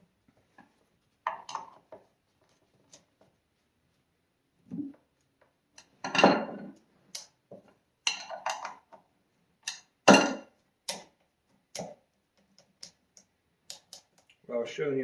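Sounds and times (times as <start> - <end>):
metal tools clanking on workbench: 8.1 - 8.8.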